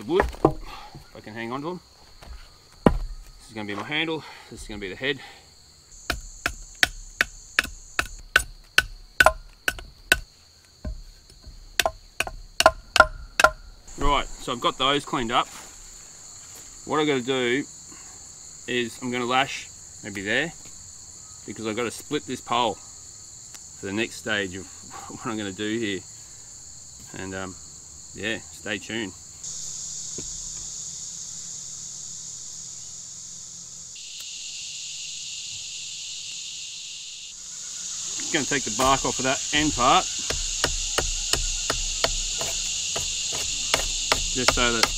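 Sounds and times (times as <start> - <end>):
insects droning: 0.0 - 44.9
machete shaving bark off log: 38.5 - 44.9.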